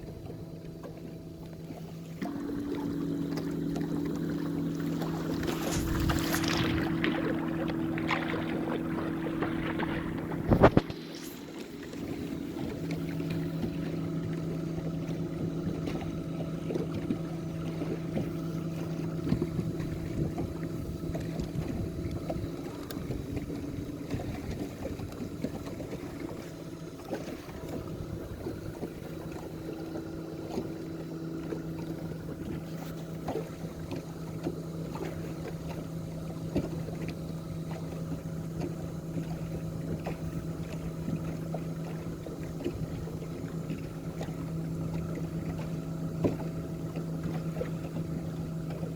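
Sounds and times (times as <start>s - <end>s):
boat motor humming: 0.0s - 48.9s
water: 0.0s - 48.9s
wind noise: 5.5s - 7.0s, 9.8s - 11.4s.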